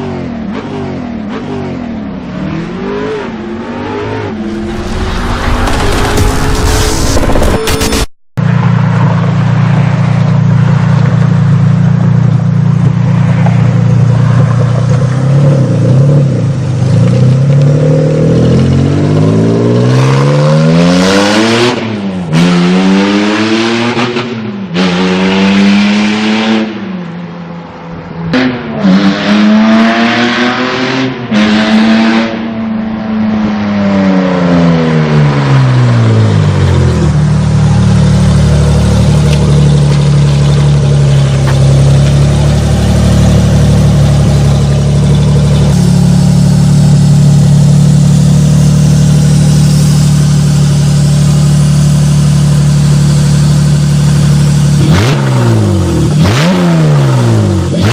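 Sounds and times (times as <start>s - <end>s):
car engine revving through gears: 28.3s - 32.6s, 54.0s - 57.9s.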